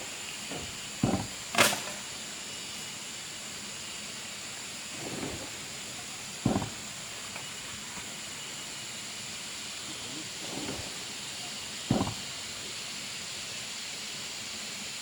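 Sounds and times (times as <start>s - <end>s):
steady high hiss: 0.0s - 15.0s
soft thuds: 0.4s - 1.8s, 4.9s - 8.2s, 9.9s - 12.7s.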